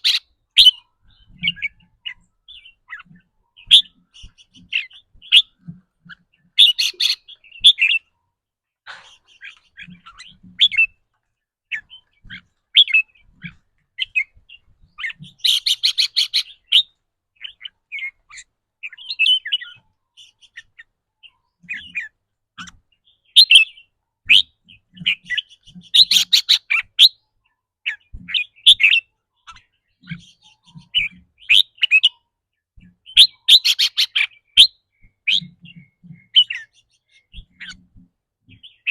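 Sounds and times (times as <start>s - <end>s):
bird chirps and whistles: 25.9s - 27.2s.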